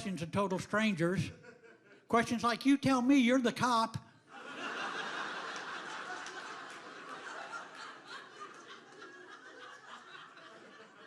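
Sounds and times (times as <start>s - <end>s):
audience laughing: 4.3s - 11.0s
scattered claps: 5.4s - 7.8s.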